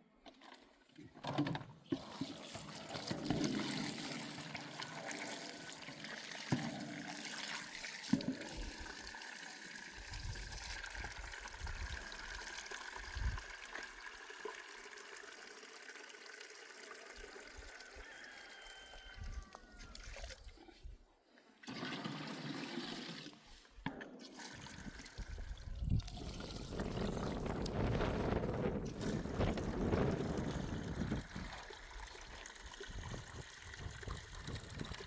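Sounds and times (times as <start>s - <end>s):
water trickling: 24.4s - 35.0s.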